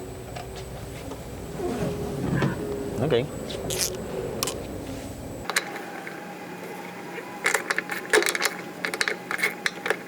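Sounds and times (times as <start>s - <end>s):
hand tools clicking on metal: 3.7s - 4.6s.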